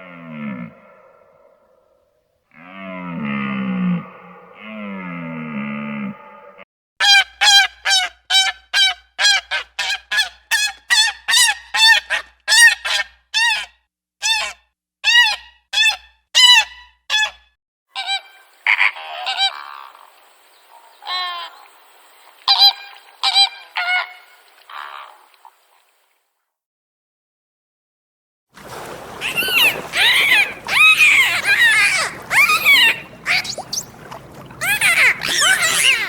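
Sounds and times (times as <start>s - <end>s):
goose honking: 28.7s - 36.0s.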